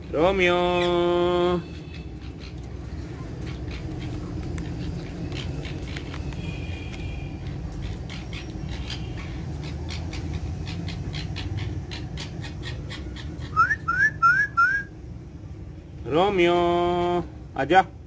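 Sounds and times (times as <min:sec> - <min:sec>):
low background rumble: 0:00.0 - 0:18.0
loud rising whistle notes: 0:13.5 - 0:14.9.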